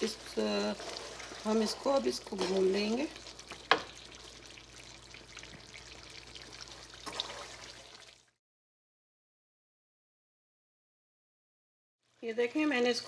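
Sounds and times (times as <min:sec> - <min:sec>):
meat sizzling in oil: 0:00.0 - 0:08.3
spatula knocking on pan: 0:03.6 - 0:04.0.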